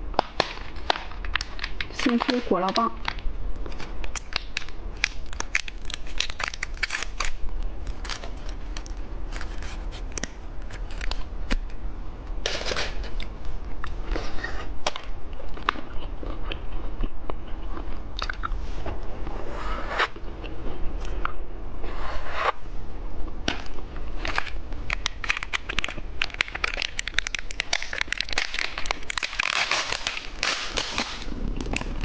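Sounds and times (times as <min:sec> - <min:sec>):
plastic packaging crinkling: 0:00.0 - 0:11.8, 0:24.2 - 0:32.0.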